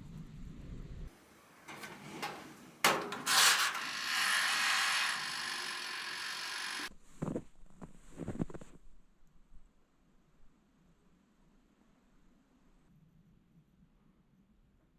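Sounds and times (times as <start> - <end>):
scraping friction: 1.3 - 6.9
sharp click: 1.7 - 6.9.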